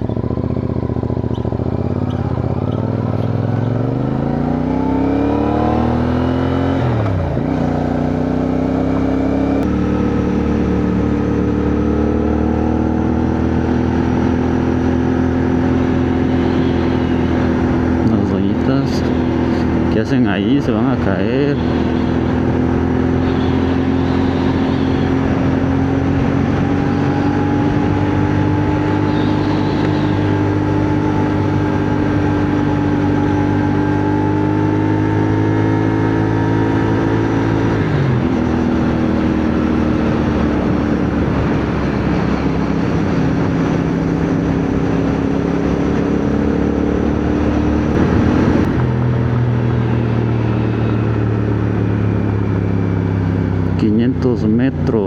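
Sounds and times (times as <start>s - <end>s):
motorcycle engine running: 0.0s - 55.0s
wind rushing: 41.2s - 50.3s.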